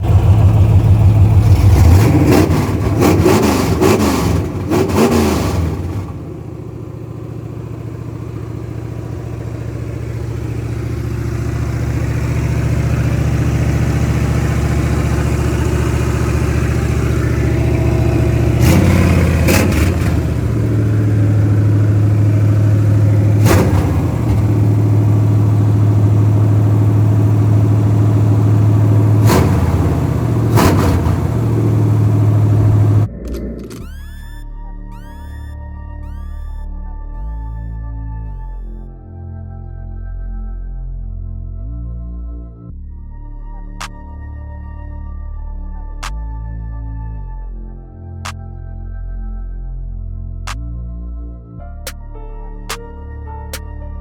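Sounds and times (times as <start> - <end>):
car engine revving and idling: 0.0 - 36.6.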